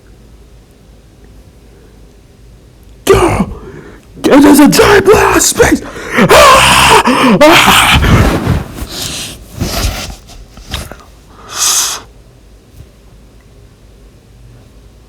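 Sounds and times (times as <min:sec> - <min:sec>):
short hiss burst: 0:11.5 - 0:12.1.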